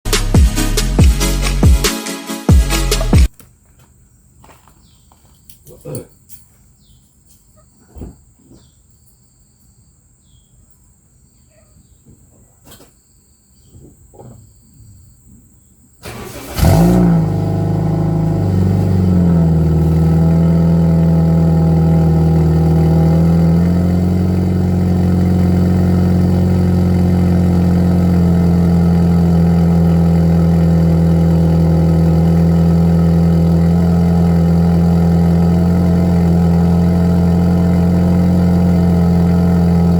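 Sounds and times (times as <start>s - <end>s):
car engine starting and idling: 16.0s - 39.9s.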